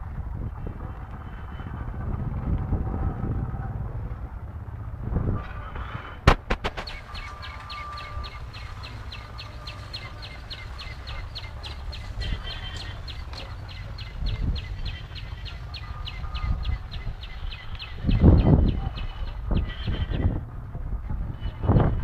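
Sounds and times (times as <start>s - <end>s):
low steady rumble: 0.0s - 22.0s
small bird chirping rapidly: 6.8s - 18.8s.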